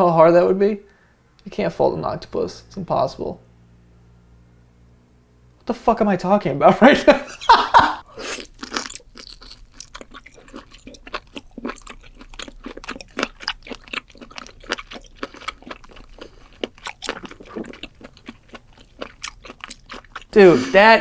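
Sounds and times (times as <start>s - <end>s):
person chewing: 8.0s - 21.0s.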